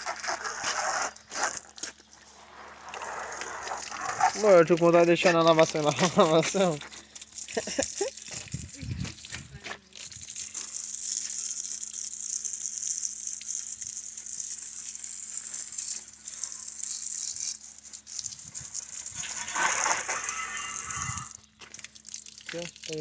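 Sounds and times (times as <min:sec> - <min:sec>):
water spraying on motorcycle: 0:02.3 - 0:23.0
small splashes: 0:06.8 - 0:23.0.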